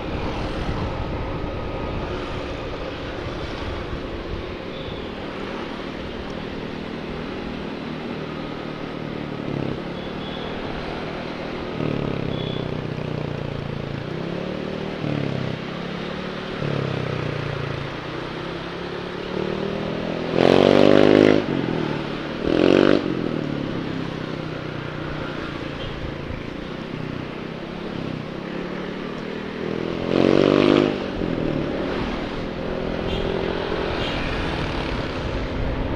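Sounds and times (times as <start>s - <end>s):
wind buffeting microphone: 0.0s - 5.0s
motorcycle engine revving: 4.7s - 35.9s.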